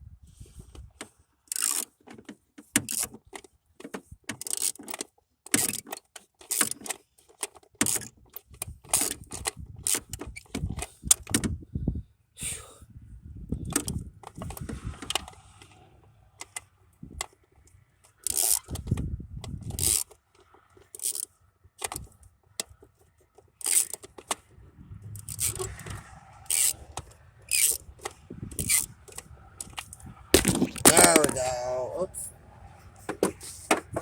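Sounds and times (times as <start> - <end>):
sharp metallic clicks: 25.1 - 31.4.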